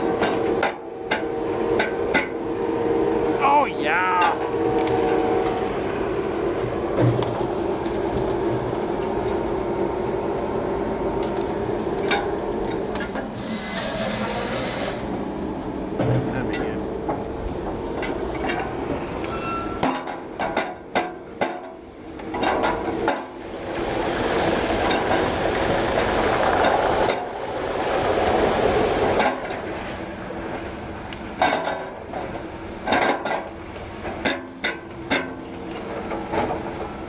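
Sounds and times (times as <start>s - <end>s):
loud rushing hiss: 13.3s - 15.3s, 22.9s - 30.4s.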